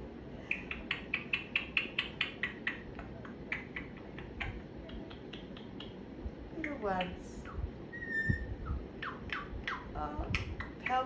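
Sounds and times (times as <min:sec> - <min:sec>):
parrot clicking: 0:00.5 - 0:06.0, 0:06.6 - 0:07.6, 0:09.0 - 0:11.0.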